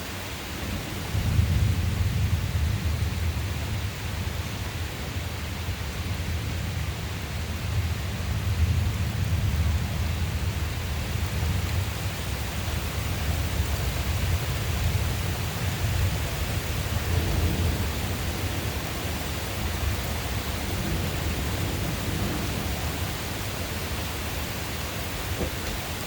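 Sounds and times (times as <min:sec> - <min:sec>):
rain hissing: 0:00.0 - 0:26.0
rolling thunder: 0:00.6 - 0:04.4, 0:12.7 - 0:26.0.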